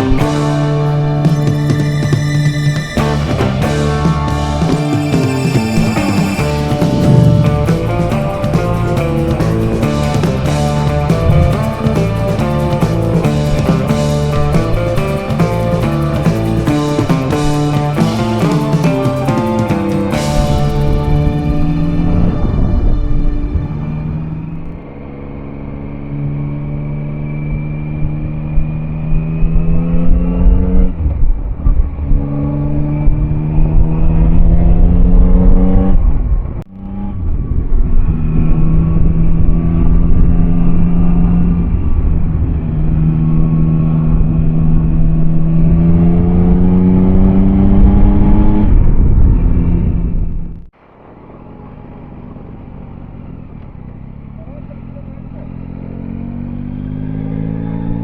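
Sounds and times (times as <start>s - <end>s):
wind noise: 0.0s - 24.8s, 29.1s - 53.8s
motorcycle engine accelerating: 0.0s - 58.0s.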